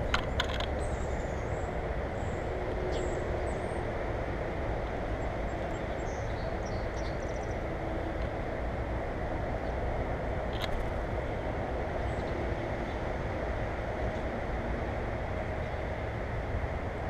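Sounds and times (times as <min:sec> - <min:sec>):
low rumbling noise: 0:00.0 - 0:05.3.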